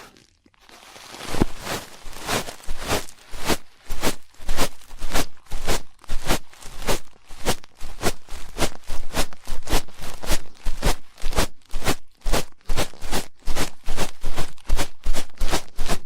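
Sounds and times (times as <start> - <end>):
ear pick scraping: 1.3 - 12.0.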